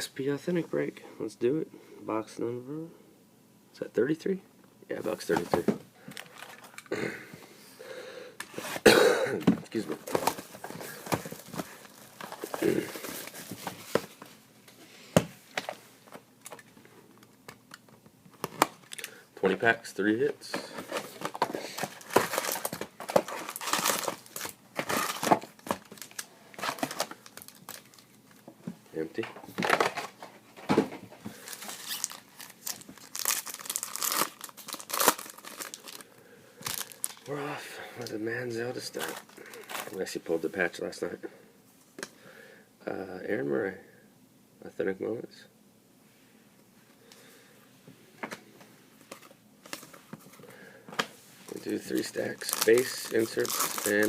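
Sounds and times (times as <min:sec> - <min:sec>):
paper and cardboard rustling: 0:20.4 - 0:28.0, 0:51.0 - 0:54.0
plastic wrapper crinkling and tearing: 0:20.9 - 0:28.2, 0:31.4 - 0:37.4, 0:51.5 - 0:54.0.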